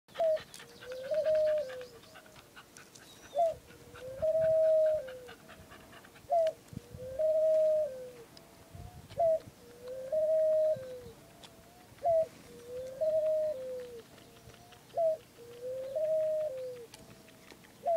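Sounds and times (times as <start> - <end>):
dove cooing: 0.1 - 17.9.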